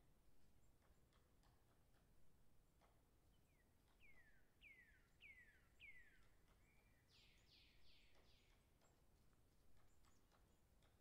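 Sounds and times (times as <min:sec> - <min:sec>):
faint whistled bird calls: 0:03.5 - 0:08.4.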